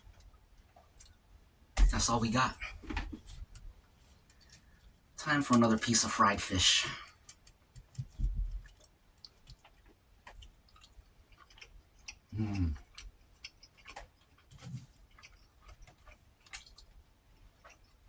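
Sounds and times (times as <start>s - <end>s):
wet chewing and mouth smacks: 7.1s - 18.0s
low burp: 12.3s - 12.8s.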